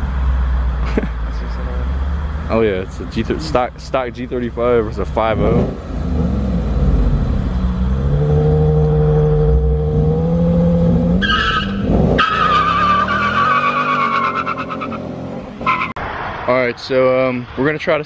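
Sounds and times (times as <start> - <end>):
racing car engines: 0.0 - 18.0
tire squeal: 10.7 - 16.5.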